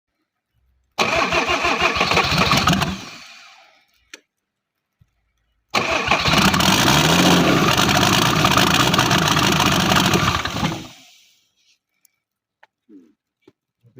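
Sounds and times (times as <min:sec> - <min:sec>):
diesel engine cranking and running: 0:01.0 - 0:03.7, 0:05.7 - 0:11.1
click: 0:03.9 - 0:05.6.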